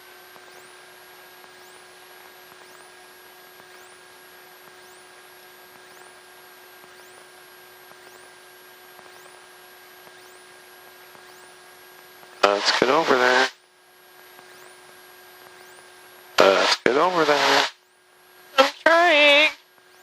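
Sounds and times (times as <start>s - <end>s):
electrical hiss and hum: 0.0s - 20.0s
whining tones: 14.4s - 16.2s.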